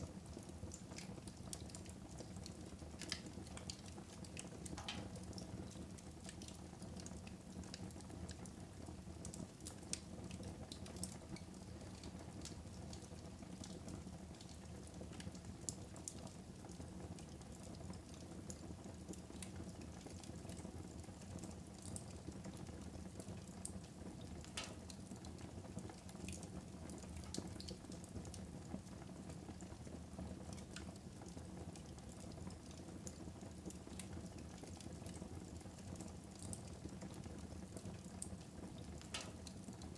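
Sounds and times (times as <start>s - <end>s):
fire crackling in fireplace: 0.0s - 39.9s.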